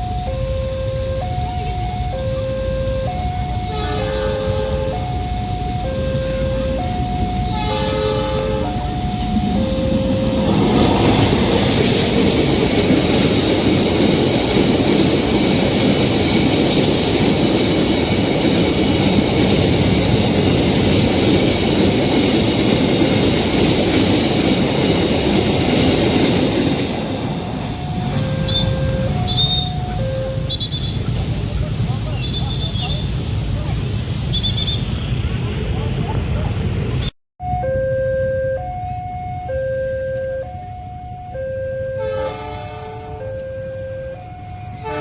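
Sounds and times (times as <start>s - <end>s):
train rumbling over rails: 2.9s - 37.1s
short electronic tones: 27.6s - 30.7s, 37.4s - 42.2s, 43.1s - 44.8s.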